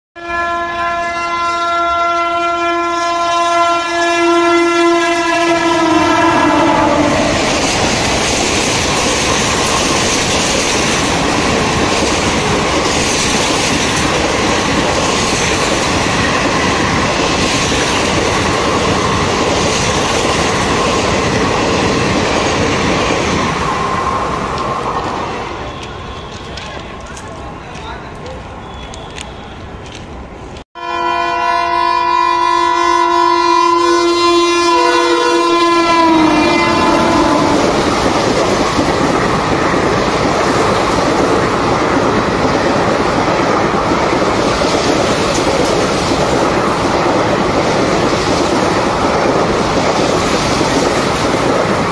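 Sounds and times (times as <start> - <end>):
train horn blast: 0.2 - 7.7, 30.8 - 38.0
train wheels clattering over rails: 7.2 - 30.2, 36.8 - 51.9.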